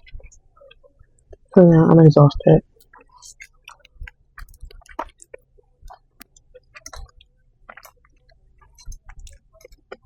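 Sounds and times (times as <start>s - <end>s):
chewing and mouth sounds: 0.0s - 1.6s, 2.7s - 10.0s.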